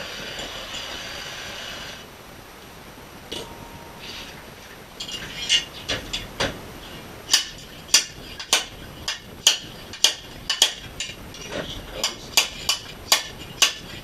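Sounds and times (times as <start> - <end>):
hammer striking metal: 3.3 - 4.5, 12.0 - 13.9.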